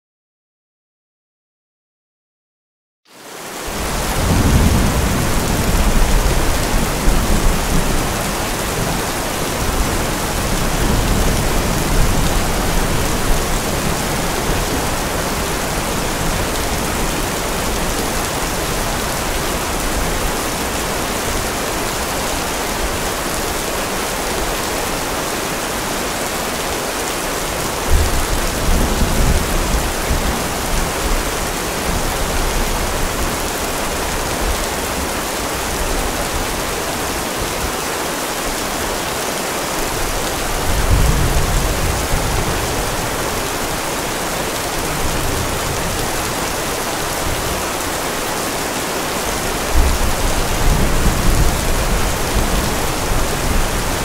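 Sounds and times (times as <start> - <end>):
steady rain: 3.1 - 54.0
thunder rumbling: 3.8 - 20.7, 27.8 - 33.2, 40.0 - 46.4.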